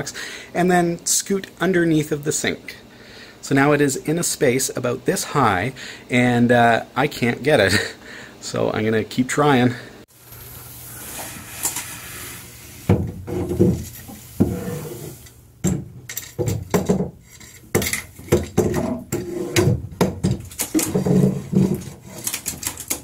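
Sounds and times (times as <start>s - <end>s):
objects knocking and scraping: 12.8s - 23.0s.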